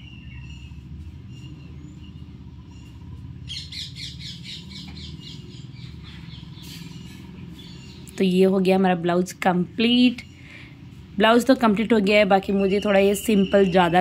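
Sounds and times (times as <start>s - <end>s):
bird chirping high calls: 0.0s - 8.2s, 12.1s - 14.0s
steady low hum: 0.0s - 14.0s.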